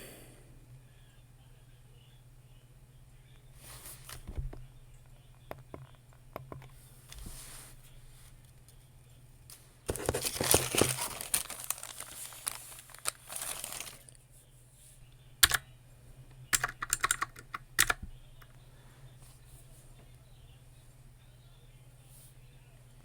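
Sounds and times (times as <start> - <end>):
rustling: 9.9 - 14.2
typing on a keyboard: 15.4 - 15.6, 16.5 - 18.0.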